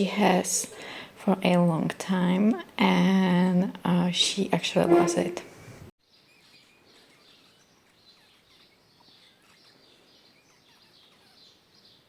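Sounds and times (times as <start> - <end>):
small birds chirping: 6.0 - 12.0.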